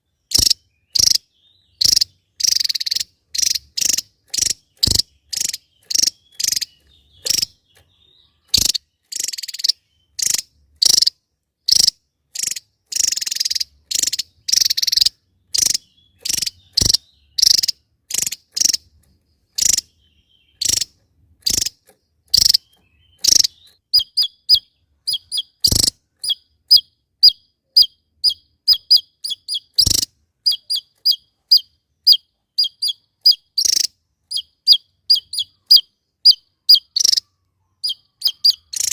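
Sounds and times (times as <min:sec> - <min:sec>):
songbird calls: 0:00.0 - 0:38.9
sharp clicks: 0:01.8 - 0:11.1, 0:25.6 - 0:26.0.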